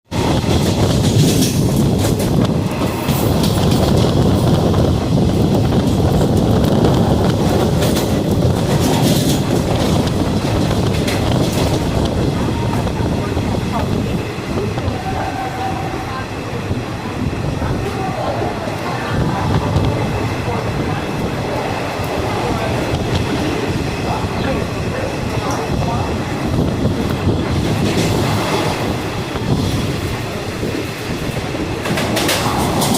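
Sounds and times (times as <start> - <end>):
rumble of train wheels: 0.0 - 32.9
wheels clicking over rail joints: 5.2 - 12.3, 31.4 - 32.9
wheels clattering over track: 31.8 - 32.9.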